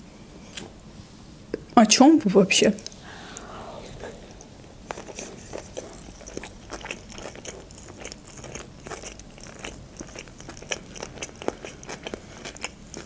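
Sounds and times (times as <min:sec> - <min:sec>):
wet chewing: 0:02.8 - 0:13.0.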